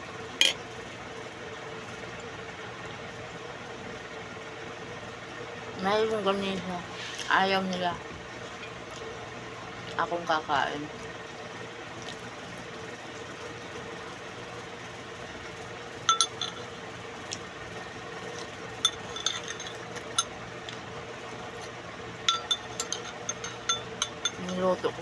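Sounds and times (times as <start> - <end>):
faint steady hum: 0.0 - 25.0
utensils clinking on dishes: 0.4 - 0.6, 16.1 - 16.7, 18.3 - 20.4, 21.5 - 25.0.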